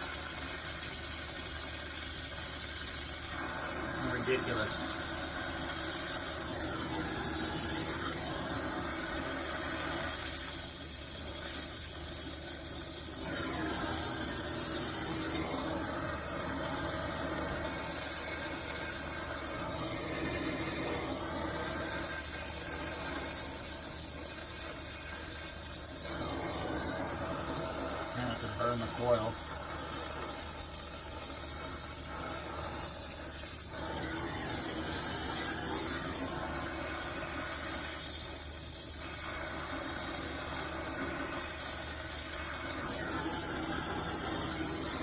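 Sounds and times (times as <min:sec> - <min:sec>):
torch flame hissing: 0:00.0 - 0:45.0.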